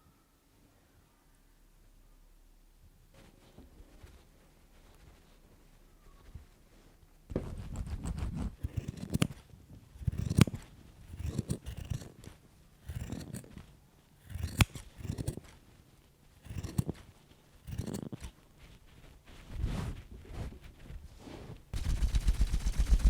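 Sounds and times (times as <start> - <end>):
scissors snipping yarn: 7.4 - 9.4, 10.0 - 15.6, 16.4 - 18.4.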